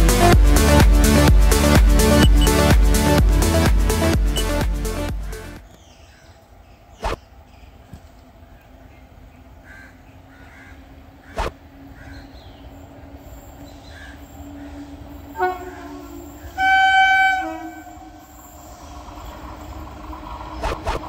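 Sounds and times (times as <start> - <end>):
train horn blast: 13.9 - 18.6.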